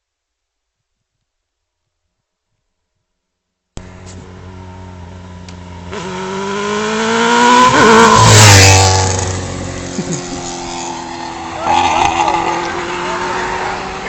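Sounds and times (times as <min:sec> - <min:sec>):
motorcycle passing by: 0:03.8 - 0:14.0.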